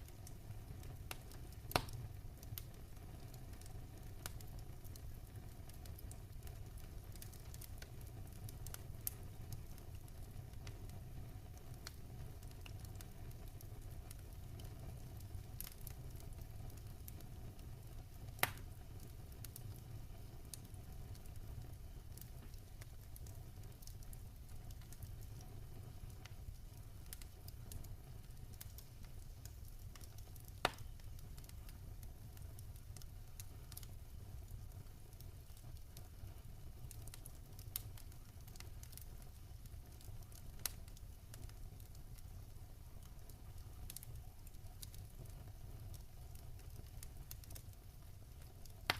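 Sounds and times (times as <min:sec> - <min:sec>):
sharp pops from fire: 0:00.0 - 0:48.9
wood fire crackling: 0:00.0 - 0:48.9.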